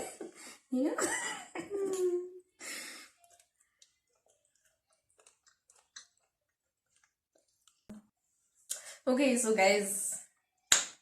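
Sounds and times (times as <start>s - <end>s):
faint chewing with mouth clicks: 1.8s - 8.8s.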